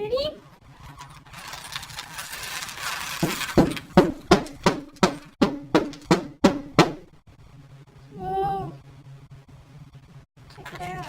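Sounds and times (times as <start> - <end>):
hissing rustle: 0.5 - 4.0.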